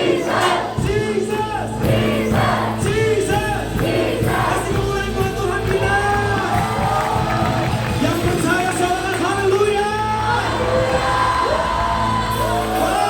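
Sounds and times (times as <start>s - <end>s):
many voices singing: 0.0s - 7.8s, 10.0s - 13.0s
band with steady bass: 0.0s - 13.0s.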